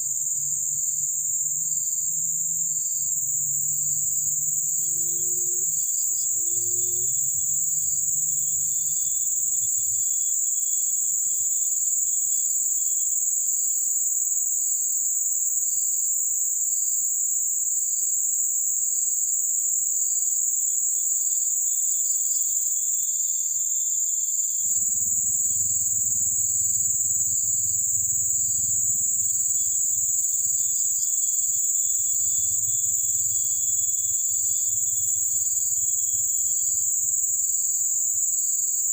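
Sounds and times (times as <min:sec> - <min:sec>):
insects shrilling: 0:00.0 - 0:11.7, 0:22.3 - 0:38.3
insect chirping in pulses: 0:00.0 - 0:38.9.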